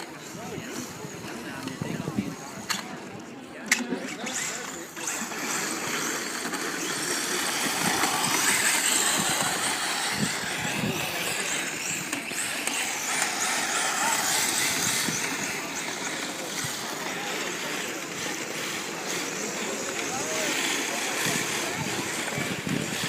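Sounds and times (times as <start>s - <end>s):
small motors whirring: 0.2s - 23.0s
tyres sliding: 3.7s - 23.0s
faint wavering whines: 4.1s - 22.4s.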